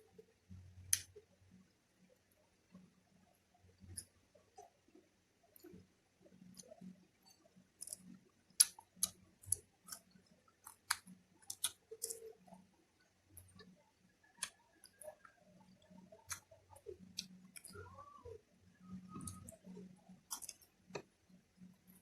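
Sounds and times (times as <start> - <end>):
chewing with mouth clicks: 7.8 - 12.6, 19.1 - 21.0.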